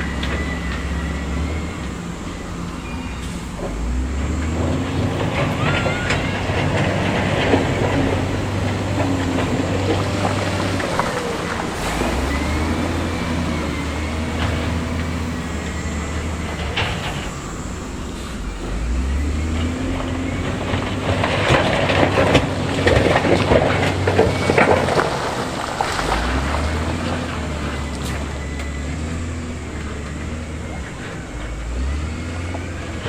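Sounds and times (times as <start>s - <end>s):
diesel engine revving: 0.0s - 33.0s
rock clattering and crunching: 18.7s - 28.8s.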